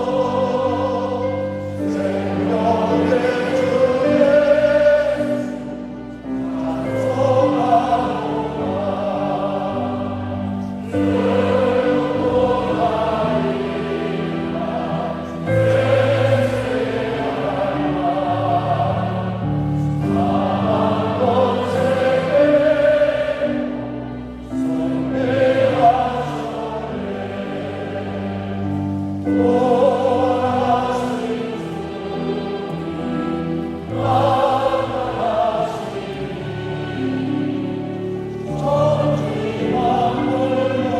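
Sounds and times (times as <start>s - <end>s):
congregation singing a hymn: 0.0s - 40.9s.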